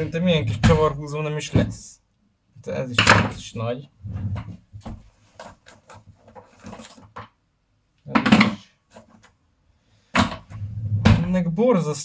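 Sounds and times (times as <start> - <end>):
tools clicking and knocking on table: 4.4 - 7.4, 8.2 - 9.4.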